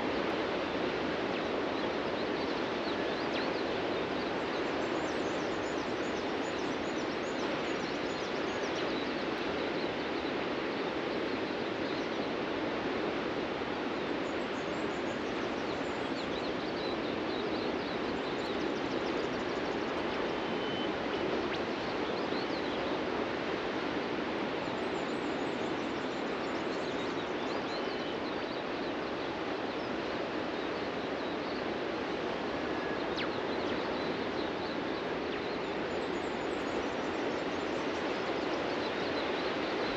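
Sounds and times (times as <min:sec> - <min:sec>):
faint bird chirps: 0:14.2 - 0:31.8, 0:32.4 - 0:39.9.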